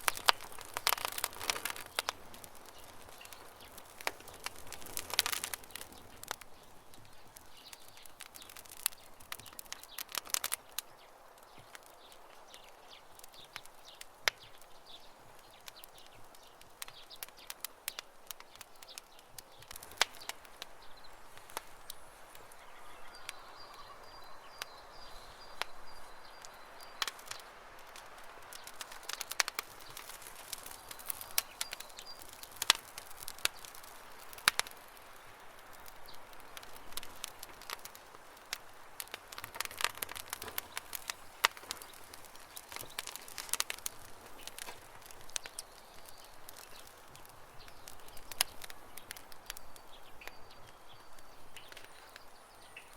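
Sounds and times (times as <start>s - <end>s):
campfire crackling and popping: 0.0s - 52.9s
faint high bird call: 22.4s - 25.6s.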